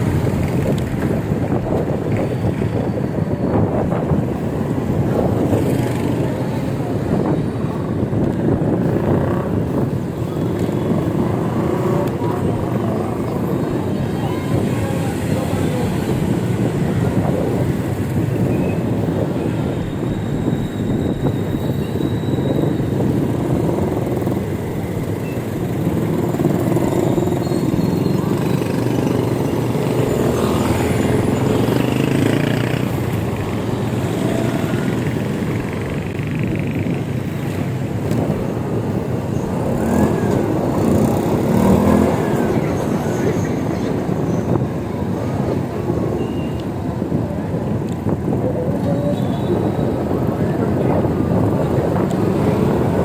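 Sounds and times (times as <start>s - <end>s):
wind rushing: 0.0s - 48.8s
road noise: 0.0s - 53.0s
vehicle traffic: 0.0s - 53.0s.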